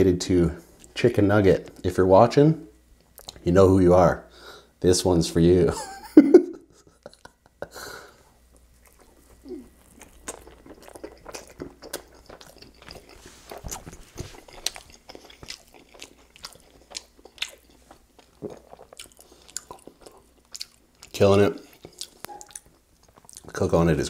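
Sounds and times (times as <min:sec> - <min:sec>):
person chewing pizza: 0:03.0 - 0:03.4, 0:06.7 - 0:23.8.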